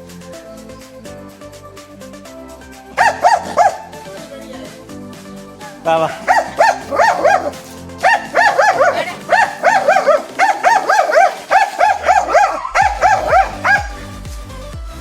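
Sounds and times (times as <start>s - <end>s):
dog yapping excitedly: 3.0s - 3.9s, 6.1s - 14.1s.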